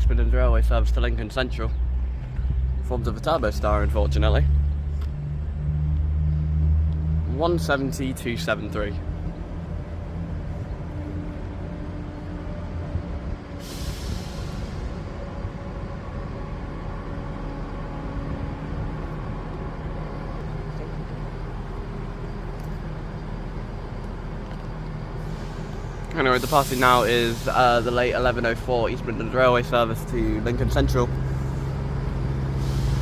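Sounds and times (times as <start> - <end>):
diesel train engine drone: 0.0 - 33.0
air hiss: 13.6 - 15.5, 25.2 - 28.4, 32.5 - 33.0.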